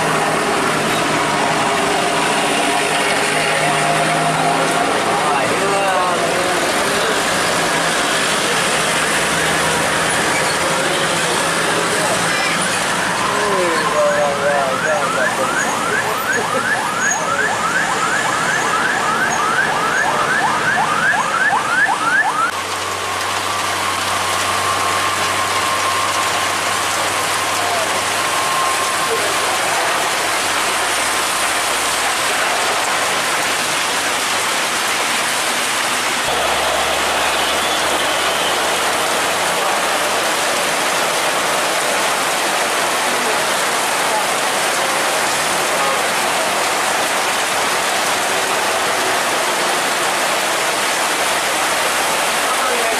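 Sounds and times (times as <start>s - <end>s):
siren steady high tone: 13.0s - 30.1s, 36.2s - 39.8s
electronic siren whooping: 13.1s - 22.6s
vehicle engine hum: 36.2s - 39.6s.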